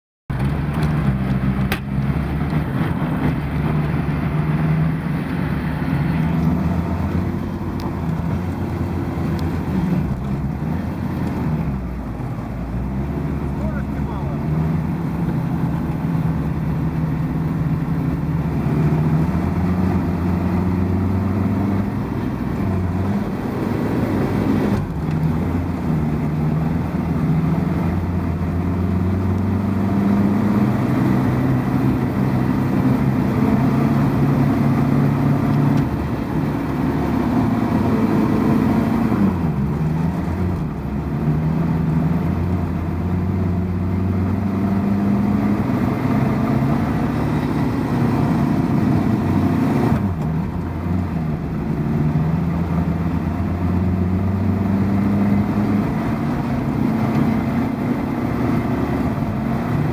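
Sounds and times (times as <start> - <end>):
car engine revving: 0.3 - 59.9.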